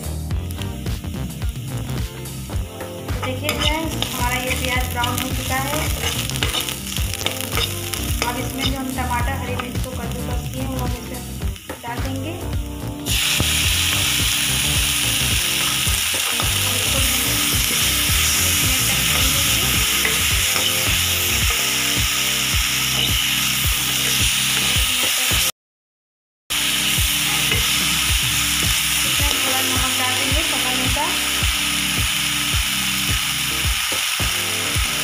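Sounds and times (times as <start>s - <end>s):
vegetables sizzling in hot oil: 0.0s - 25.5s, 26.5s - 35.0s
steel skimmer scraping a pan: 3.2s - 8.9s, 15.4s - 21.9s, 22.8s - 24.8s.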